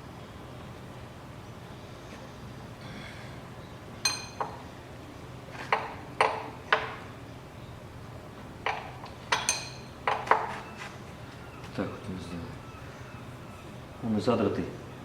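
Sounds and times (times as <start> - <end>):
metal tools clinking on engine block: 9.3 - 10.6.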